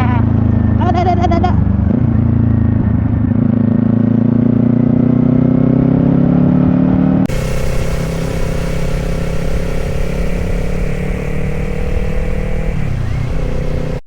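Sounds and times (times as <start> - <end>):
motorcycle engine running: 7.3 - 14.0
wind noise: 7.3 - 14.0.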